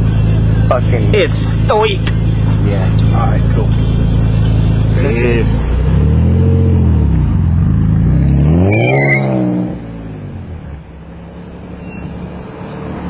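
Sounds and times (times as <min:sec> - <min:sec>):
car engine revving: 0:00.0 - 0:13.0
turbo whistle: 0:08.7 - 0:09.4.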